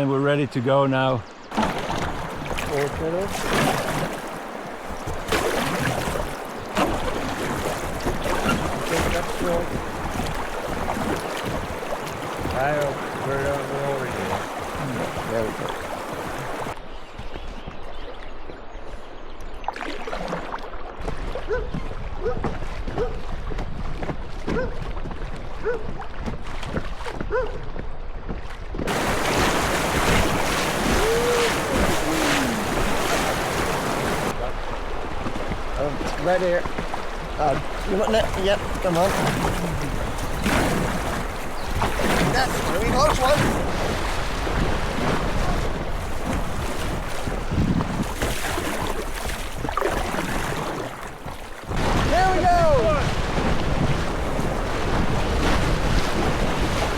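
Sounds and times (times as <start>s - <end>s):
rushing water: 0.0s - 16.9s, 19.4s - 27.2s, 28.2s - 56.9s
wind buffeting microphone: 21.0s - 56.9s
river rapids rushing: 28.9s - 34.4s
wind noise on microphone: 39.2s - 48.9s, 51.7s - 56.9s.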